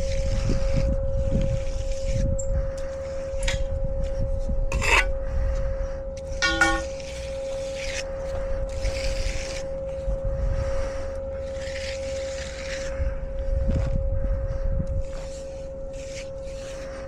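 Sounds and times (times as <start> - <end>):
steady hum: 0.0 - 17.0
tool scraping wet concrete: 4.7 - 5.1, 6.4 - 10.0, 11.4 - 13.0, 15.0 - 17.0.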